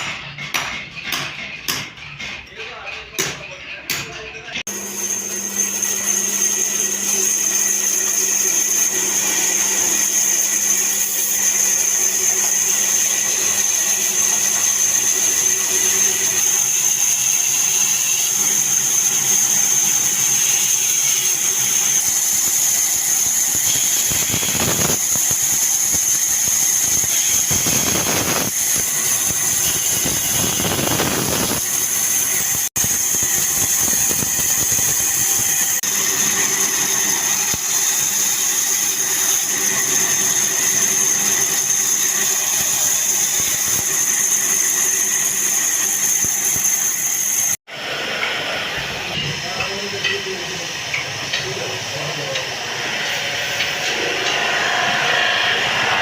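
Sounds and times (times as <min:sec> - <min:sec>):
power tool whining: 0:04.6 - 0:56.0
tool cutting into wood: 0:05.4 - 0:47.5.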